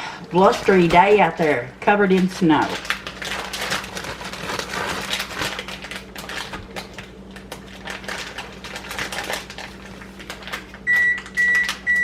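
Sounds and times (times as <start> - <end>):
electronic appliance beep: 10.8 - 12.0.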